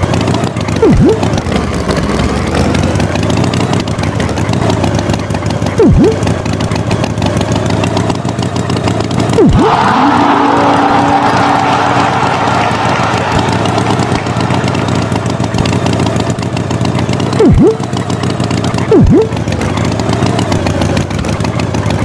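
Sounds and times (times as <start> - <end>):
cartoon tractor engine running: 0.0 - 22.0
steady tone: 0.8 - 1.4, 5.8 - 6.3, 17.4 - 17.9.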